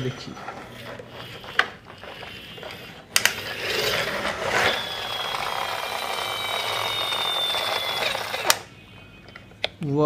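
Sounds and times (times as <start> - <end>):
toy car whirring whine: 0.0 - 8.8
toy car mechanism click: 0.8 - 4.0, 4.6 - 8.7.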